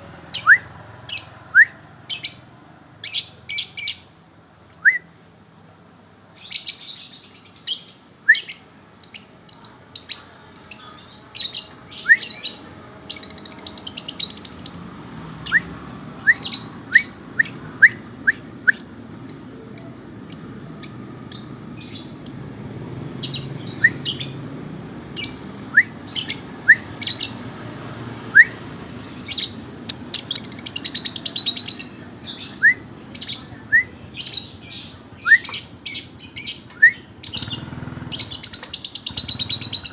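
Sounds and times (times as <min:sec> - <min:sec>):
songbird sharp chirps: 0:29.2 - 0:39.9.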